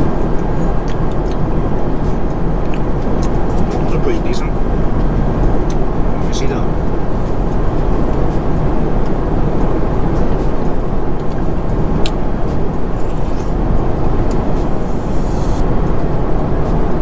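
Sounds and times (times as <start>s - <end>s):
airliner cabin noise: 0.0s - 17.0s
brief hiss: 14.6s - 15.6s.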